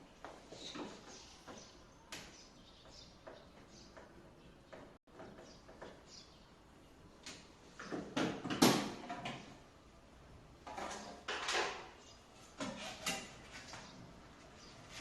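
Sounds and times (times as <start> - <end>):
scraping and knocking of parts: 10.6 - 13.9.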